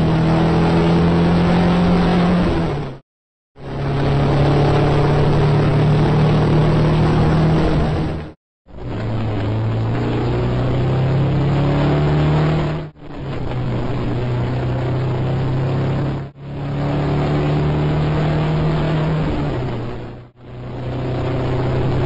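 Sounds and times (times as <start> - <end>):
racing car engine at high revs: 0.0 - 3.0, 3.6 - 22.0.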